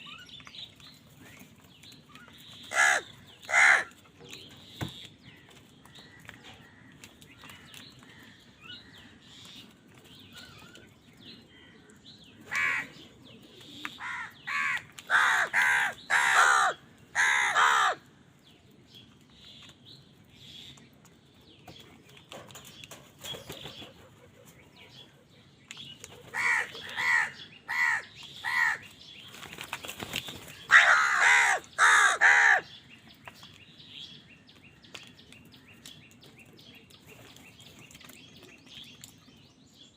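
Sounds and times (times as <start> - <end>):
crows cawing: 2.7 - 4.0, 12.5 - 13.0, 14.0 - 18.1, 26.3 - 28.8, 30.7 - 32.7.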